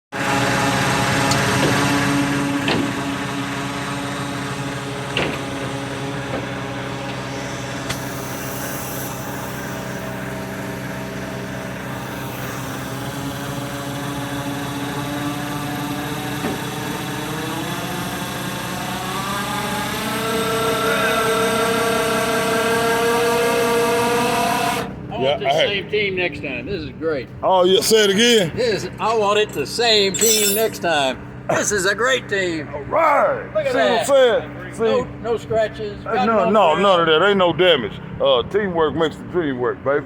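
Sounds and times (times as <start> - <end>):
truck engine running: 0.2 - 8.5.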